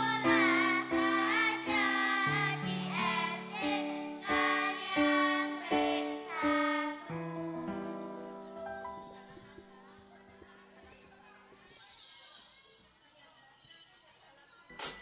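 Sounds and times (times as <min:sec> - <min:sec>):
children's choir singing: 0:00.0 - 0:10.8.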